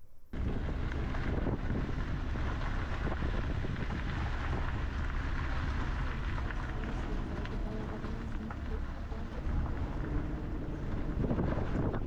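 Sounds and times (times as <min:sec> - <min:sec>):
truck driving on highway: 0:00.4 - 0:12.0.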